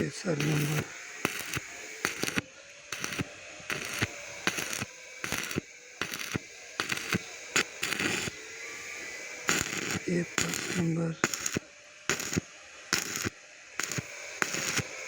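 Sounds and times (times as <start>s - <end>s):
faint steady hum: 0.0s - 15.0s
welding arc crackling: 0.0s - 15.0s.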